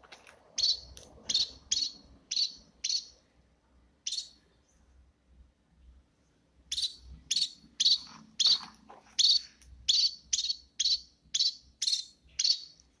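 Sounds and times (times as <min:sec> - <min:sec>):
small birds chirping sharply: 0:00.5 - 0:03.2, 0:04.0 - 0:04.8, 0:06.7 - 0:13.0.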